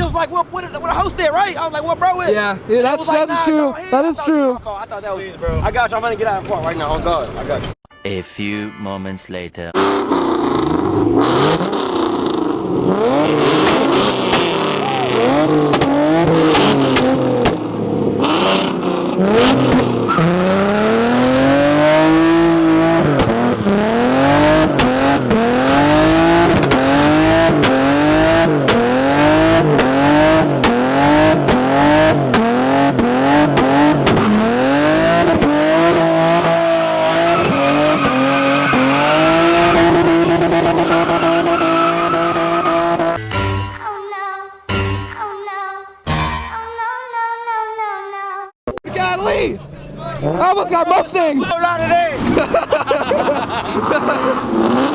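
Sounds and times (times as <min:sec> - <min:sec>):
car engine revving hard: 0:09.8 - 0:43.2, 0:51.8 - 0:54.9
sharp exhaust cracks: 0:09.8 - 0:43.2.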